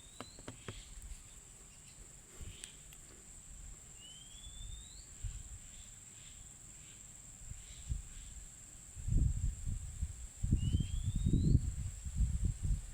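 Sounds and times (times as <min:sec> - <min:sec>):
high-pitched insect trill: 0:04.0 - 0:12.4.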